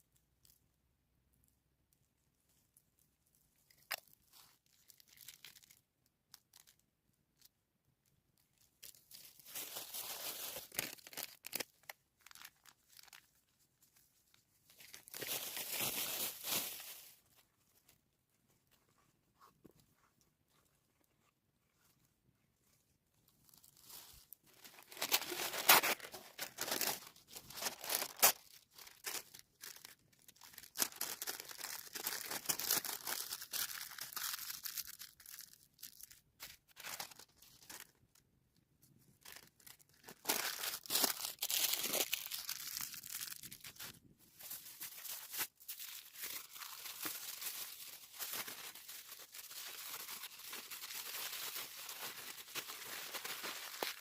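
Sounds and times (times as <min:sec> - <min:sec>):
rustling and tearing: 0:23.4 - 0:38.0, 0:39.2 - 0:54.0.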